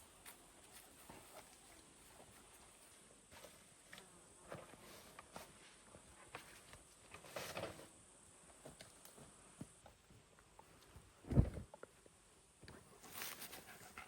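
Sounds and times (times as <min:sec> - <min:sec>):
rustle: 0:00.0 - 0:14.0.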